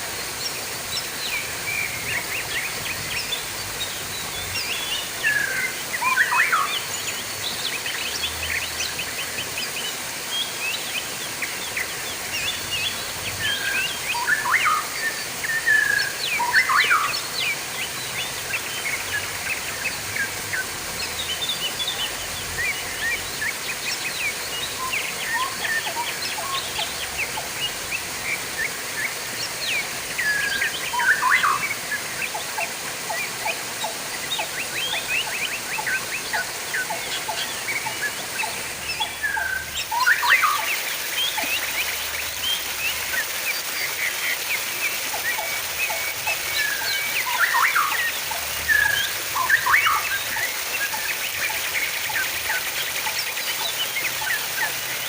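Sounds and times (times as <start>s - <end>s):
running trickling water: 0.0s - 55.0s
small birds chirping and twittering: 0.0s - 55.0s.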